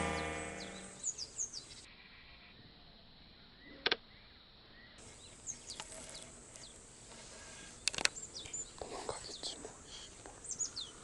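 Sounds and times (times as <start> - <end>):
bird chirps: 0.0 - 2.5.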